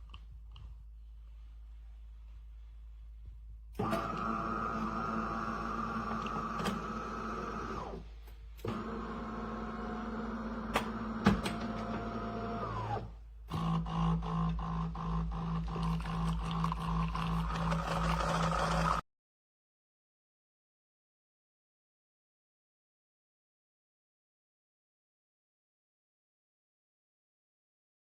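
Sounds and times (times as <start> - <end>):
espresso machine humming: 3.9 - 7.9, 13.6 - 19.0.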